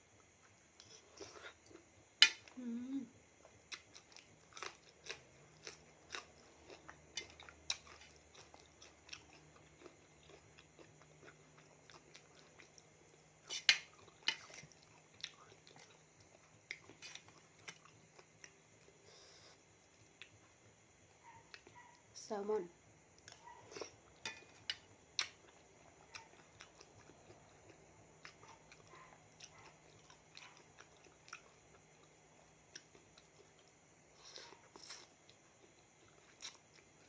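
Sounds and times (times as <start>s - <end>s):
wet chewing and mouth smacking: 3.4s - 19.0s, 23.2s - 37.0s.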